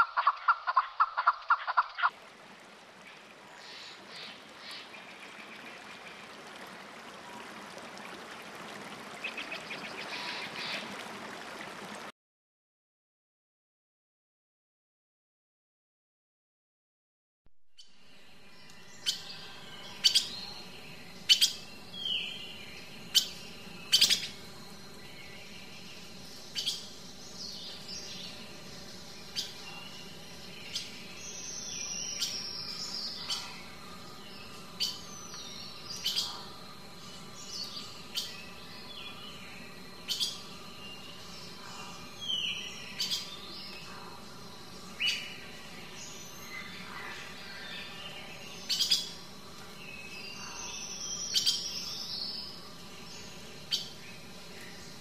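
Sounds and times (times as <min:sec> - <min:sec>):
birds chirping: 0:17.8 - 0:55.0.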